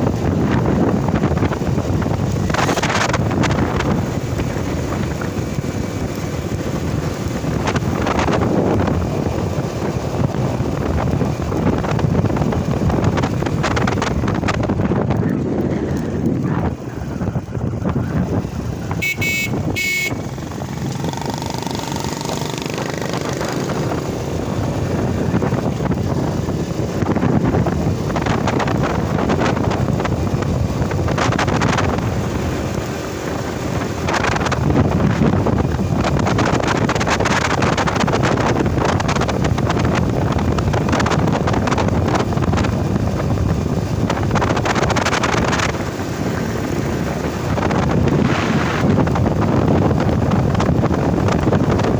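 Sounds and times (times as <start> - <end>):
motorcycle engine running: 0.0 - 51.9
short high beeps: 19.0 - 20.2.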